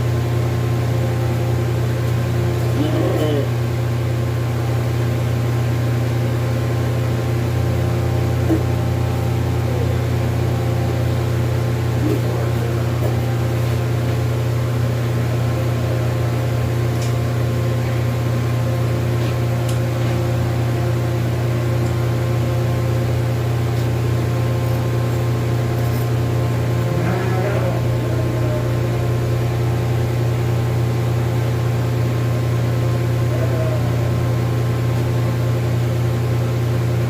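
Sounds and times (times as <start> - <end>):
welder transformer humming: 0.0 - 37.0.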